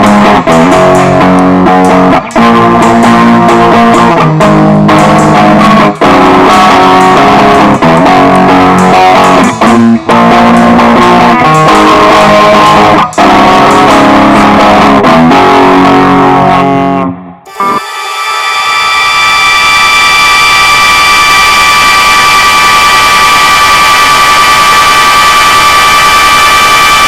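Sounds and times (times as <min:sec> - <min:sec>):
guitar band music with drums: 0:00.0 - 0:17.9.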